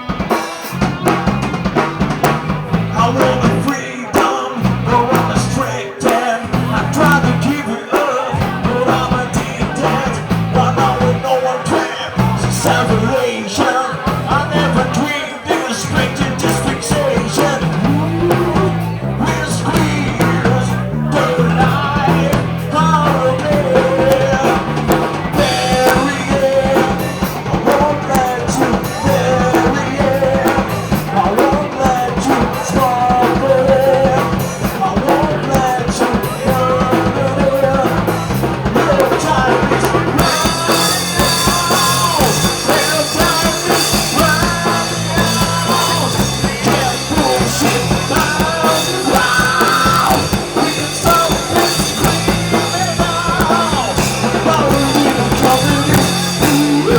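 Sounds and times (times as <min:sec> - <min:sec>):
drum kit: 0:00.0 - 0:56.9
rock song: 0:00.0 - 0:56.9
person singing: 0:02.7 - 0:56.9
cymbals washing: 0:40.2 - 0:56.9.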